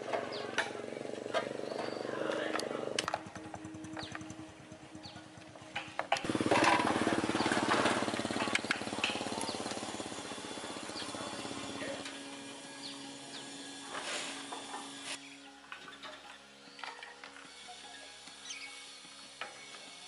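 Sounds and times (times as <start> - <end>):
motor-driven machine pulsing: 2.9 - 15.2.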